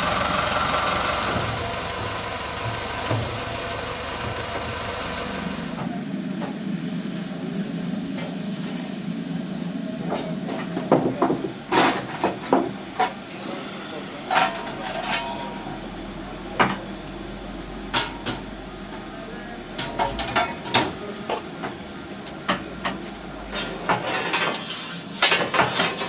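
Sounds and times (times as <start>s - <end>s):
steady low hum: 13.4s - 24.5s.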